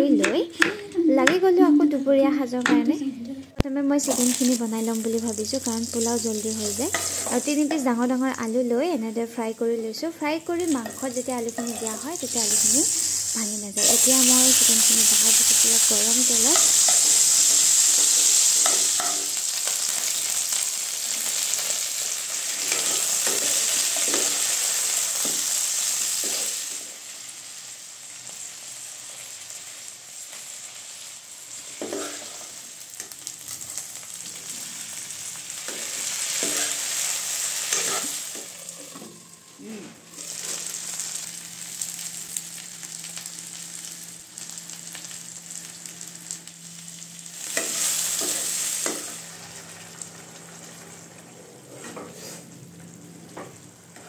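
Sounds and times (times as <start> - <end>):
metal spoon scraping a pan: 6.9 - 7.4, 11.6 - 13.2, 35.7 - 37.0, 37.6 - 39.0.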